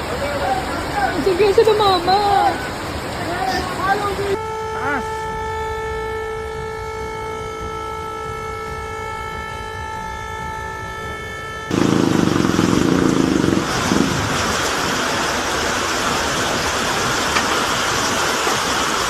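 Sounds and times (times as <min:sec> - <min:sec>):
loud rushing water: 0:00.0 - 0:10.8, 0:11.7 - 0:19.0
vehicle horn long note: 0:04.3 - 0:13.7.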